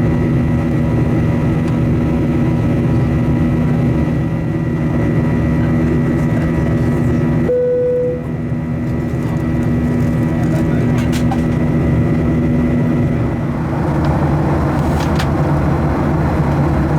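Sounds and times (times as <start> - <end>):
airplane cabin engine drone: 0.0 - 16.9
constant hum: 0.0 - 16.9
short tone: 7.5 - 8.4.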